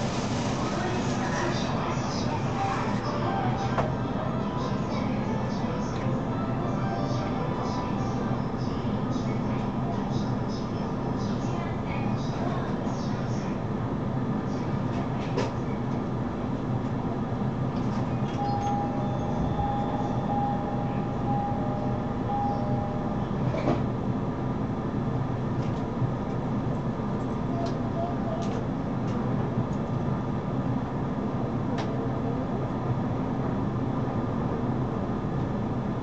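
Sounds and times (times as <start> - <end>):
train pulling away: 0.0 - 5.8
low hum of train equipment: 0.0 - 36.0
short beeping tone: 18.4 - 23.2.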